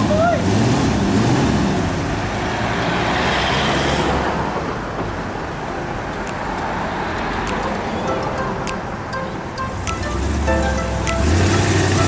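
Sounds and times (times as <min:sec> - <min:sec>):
road traffic: 0:04.7 - 0:12.0.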